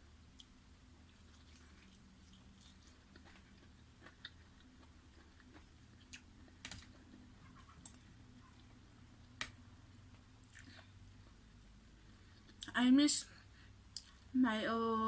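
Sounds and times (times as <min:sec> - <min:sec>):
low steady hum: 0:00.0 - 0:15.0
soft chewing crunches: 0:00.3 - 0:09.5, 0:10.1 - 0:12.8.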